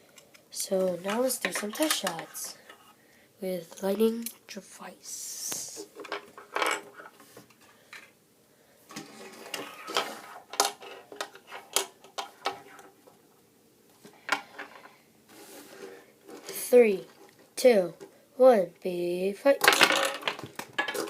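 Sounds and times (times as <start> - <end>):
plastic toy clicks and knocks: 1.1 - 2.3, 9.5 - 12.6, 19.6 - 21.0.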